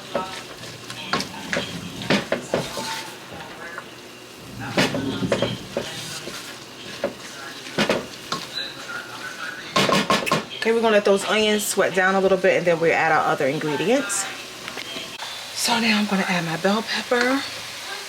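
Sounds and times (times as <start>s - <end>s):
food sizzling in a pot: 0.0s - 18.0s
spoon scraping a pot: 0.1s - 3.3s.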